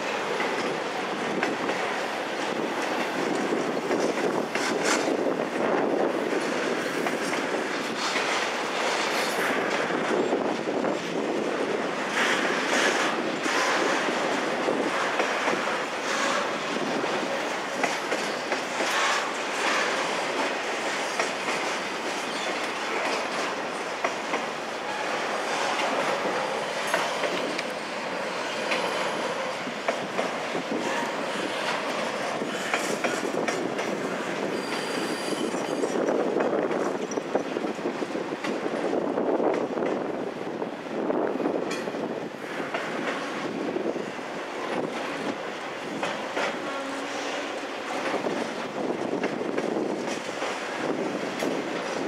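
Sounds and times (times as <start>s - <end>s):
train wheels clanking over rail joints: 0.0s - 40.1s, 41.6s - 52.0s
train wheel squeals: 14.9s - 37.6s, 46.0s - 48.6s.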